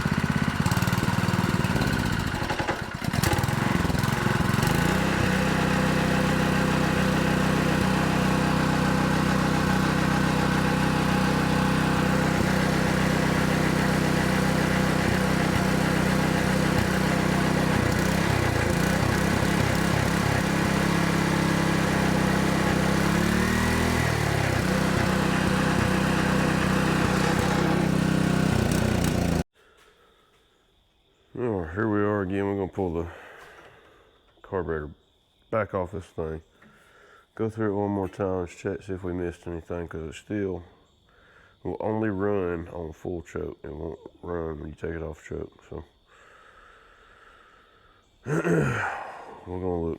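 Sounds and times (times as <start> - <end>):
water pump engine running: 0.0 - 29.4.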